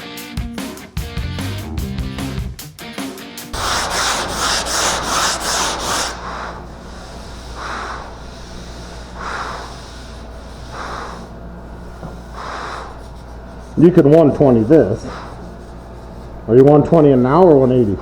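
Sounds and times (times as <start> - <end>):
sandpaper rubbing on car panel: 3.6 - 8.5.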